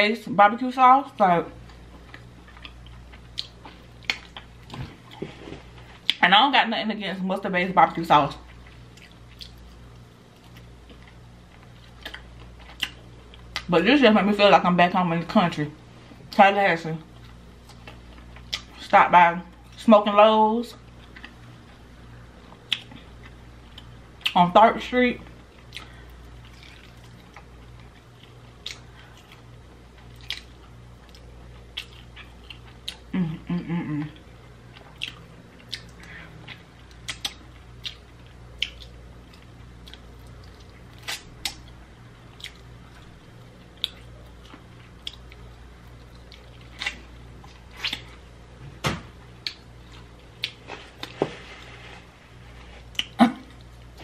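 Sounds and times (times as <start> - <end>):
faint low hum: 0.0 - 54.0
wet chewing and biting: 25.6 - 33.1, 34.8 - 41.8, 42.4 - 48.2
person humming: 33.1 - 34.2.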